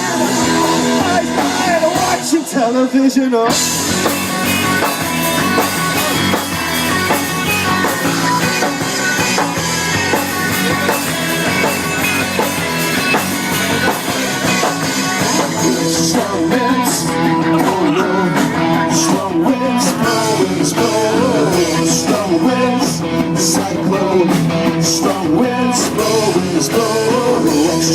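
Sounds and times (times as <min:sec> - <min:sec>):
person singing: 0:00.0 - 0:03.7, 0:14.6 - 0:27.9
drums: 0:00.0 - 0:27.9
electric guitars: 0:00.0 - 0:27.9.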